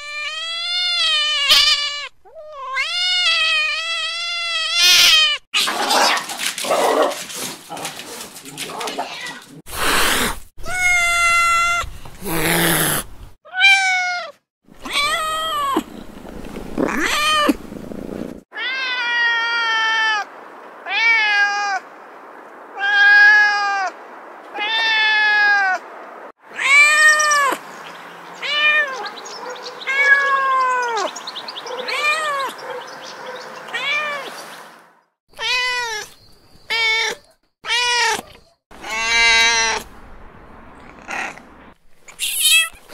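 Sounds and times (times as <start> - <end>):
cats meowing: 0.0 - 6.2, 8.5 - 15.8, 16.8 - 17.6, 18.6 - 20.3, 26.6 - 27.6, 28.4 - 29.2, 29.8 - 31.1, 31.8 - 32.6, 33.7 - 34.3, 35.4 - 39.9, 42.1 - 42.9.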